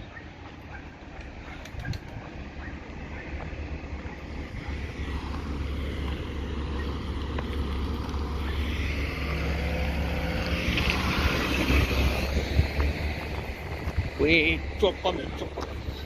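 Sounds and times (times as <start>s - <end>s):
diesel truck engine rumbling: 0.0s - 16.0s
wind noise on microphone: 1.3s - 2.6s, 8.2s - 16.0s.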